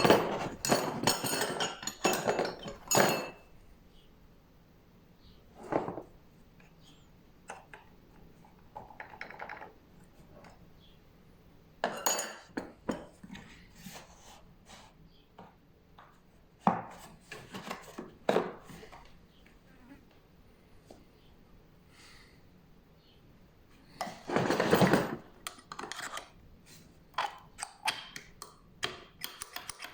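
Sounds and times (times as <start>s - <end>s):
knocks and rattles of hard objects: 0.0s - 3.5s, 7.5s - 10.5s, 11.8s - 13.6s, 15.4s - 19.0s, 24.0s - 26.1s.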